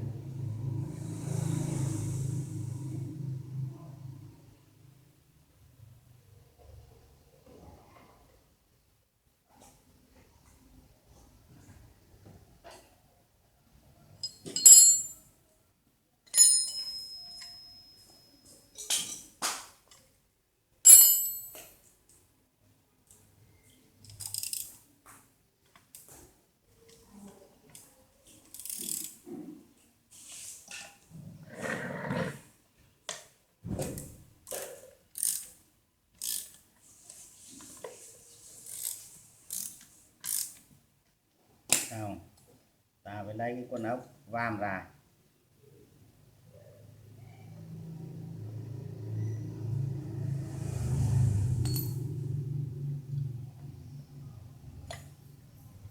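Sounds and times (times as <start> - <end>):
metal parts clinking: 14.2 - 15.1
metallic ratcheting and scraping: 28.5 - 29.2, 36.2 - 36.5, 38.6 - 40.6.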